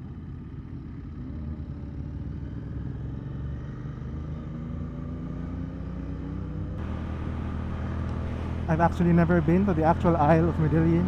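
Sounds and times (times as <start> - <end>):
wind and road noise: 0.0 - 11.0
motorcycle engine running: 6.8 - 11.0.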